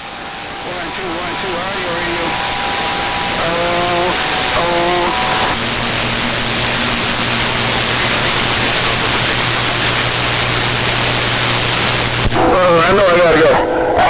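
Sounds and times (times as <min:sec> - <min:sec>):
radio static hiss: 0:00.0 - 0:14.0
steady low hum: 0:00.0 - 0:14.0
brief radio tone: 0:03.4 - 0:14.0.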